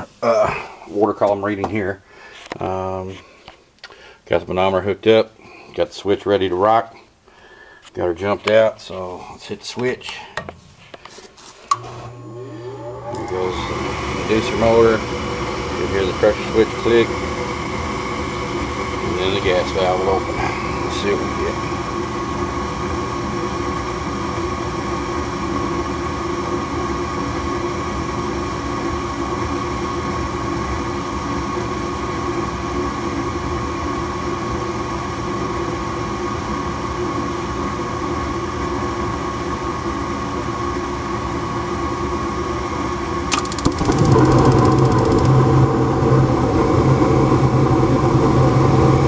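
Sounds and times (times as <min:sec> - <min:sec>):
furnace motor whine: 0:11.7 - 0:35.0, 0:42.3 - 0:49.0
burners low hum: 0:12.1 - 0:21.9
gas valve click: 0:43.3 - 0:45.4.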